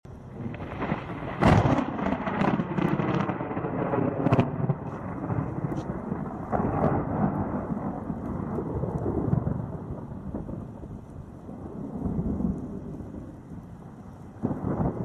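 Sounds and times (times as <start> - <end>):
steady rain: 0.1 - 15.0
thunder cracks and rumble: 0.1 - 15.0.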